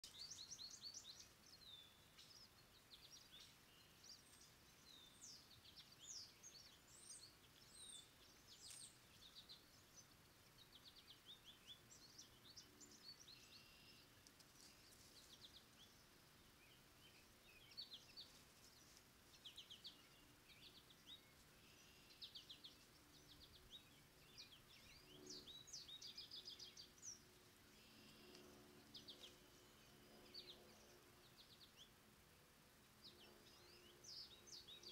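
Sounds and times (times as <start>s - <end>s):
faint birdsong: 0.0s - 34.9s.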